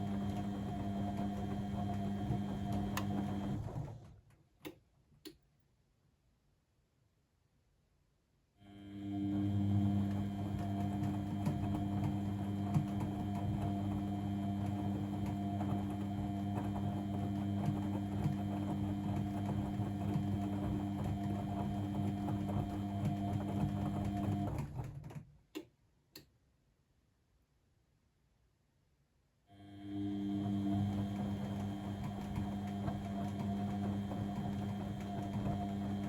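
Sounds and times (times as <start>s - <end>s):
washing machine motor hum: 0.0s - 4.3s, 8.6s - 25.2s, 29.6s - 36.0s.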